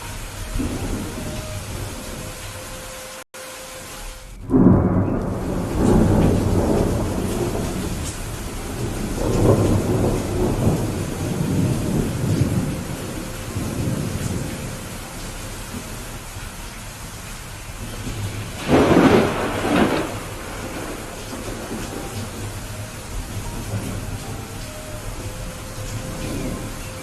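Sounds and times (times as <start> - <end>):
low thunder rumble: 0.0 - 2.8, 4.4 - 27.0
steady rain: 0.0 - 27.0
sharp thunderclap: 4.4 - 14.9, 17.8 - 24.2.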